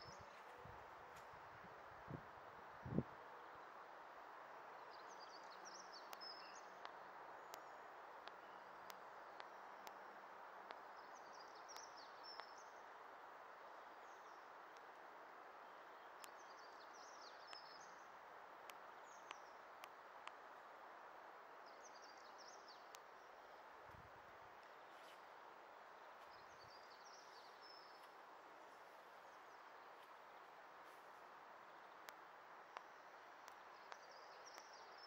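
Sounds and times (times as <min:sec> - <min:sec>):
steady background hiss: 0:00.0 - 0:35.0
small birds twittering: 0:02.7 - 0:13.1, 0:15.6 - 0:35.0
faint ticks: 0:05.3 - 0:12.8, 0:14.2 - 0:15.0, 0:16.1 - 0:17.8, 0:18.6 - 0:20.5, 0:21.6 - 0:25.4, 0:26.1 - 0:35.0.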